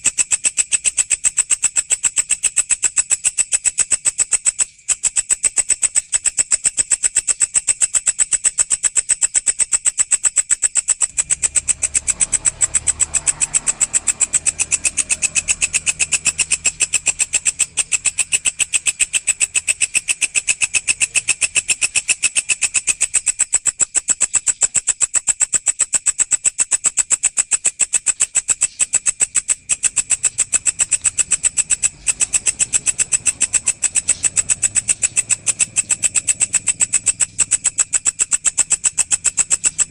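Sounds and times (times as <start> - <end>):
grasshopper stridulating: 0.0 - 39.9.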